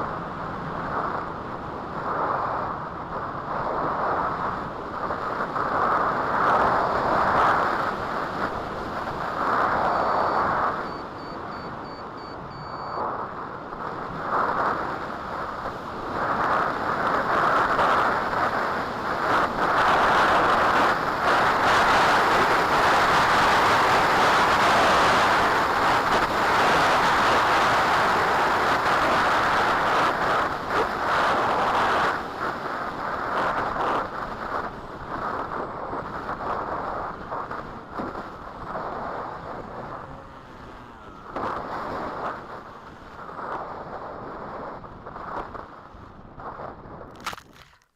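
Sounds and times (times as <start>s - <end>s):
gusting wind buffeting microphone: 0.0s - 47.6s
faint high beeps: 9.8s - 13.1s.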